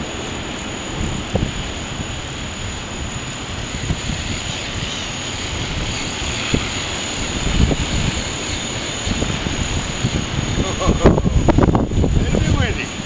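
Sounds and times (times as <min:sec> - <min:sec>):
wind buffeting microphone: 0:00.0 - 0:13.0
low rumbling thumps: 0:09.1 - 0:12.7.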